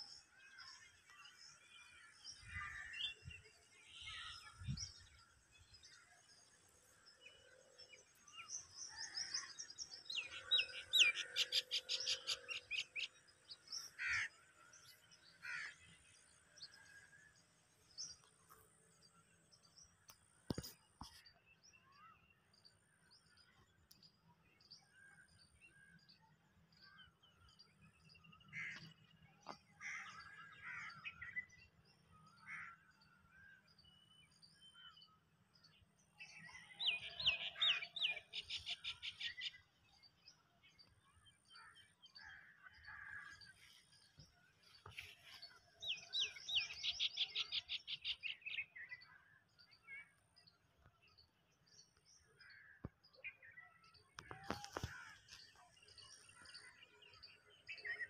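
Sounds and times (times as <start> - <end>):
small birds chirping: 26.8 - 58.0.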